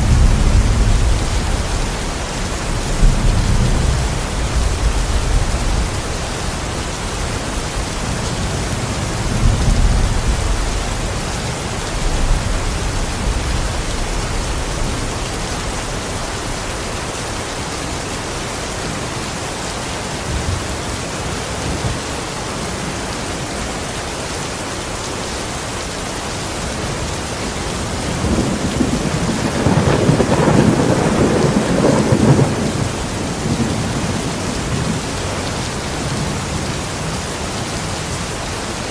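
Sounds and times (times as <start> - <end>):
thunder rumbling: 0.0 - 16.7, 26.8 - 38.9
steady rain: 0.0 - 38.9.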